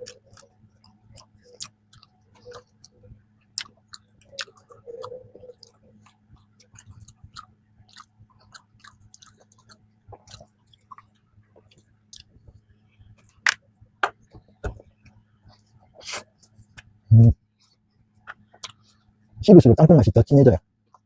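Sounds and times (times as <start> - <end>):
wet chewing: 0.0 - 12.4, 18.3 - 19.0.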